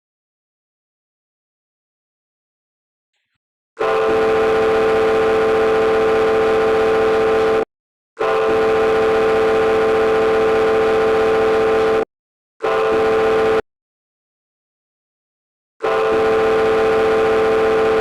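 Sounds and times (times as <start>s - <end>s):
ship's horn blasts: 3.8s - 7.6s, 8.2s - 12.0s, 12.6s - 13.6s, 15.8s - 18.0s.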